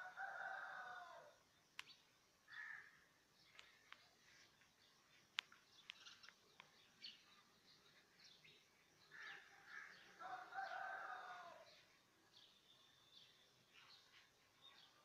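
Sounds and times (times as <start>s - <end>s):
faint bird calls: 0.0s - 4.6s, 9.0s - 11.9s
sharp click: 1.8s - 2.0s.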